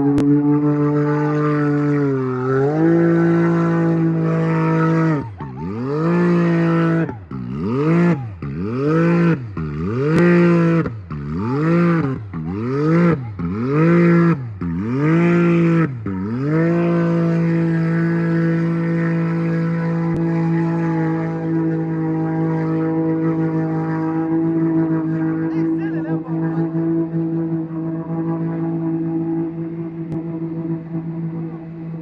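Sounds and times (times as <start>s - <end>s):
engine revving hard: 0.0s - 32.0s.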